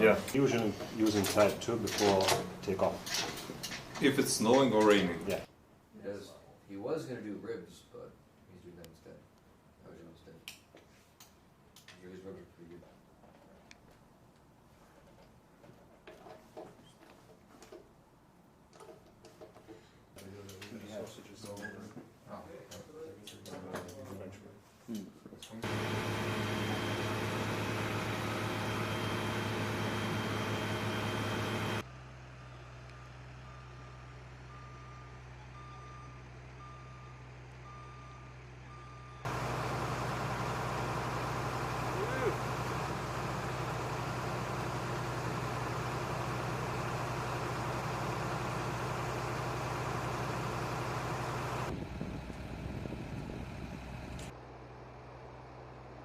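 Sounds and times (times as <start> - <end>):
machinery drone: 25.6 - 31.8, 39.3 - 54.3.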